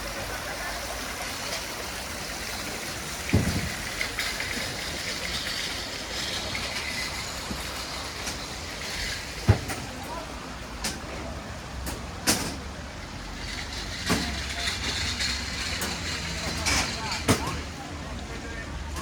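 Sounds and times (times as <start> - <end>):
dull thump: 3.3 - 3.8.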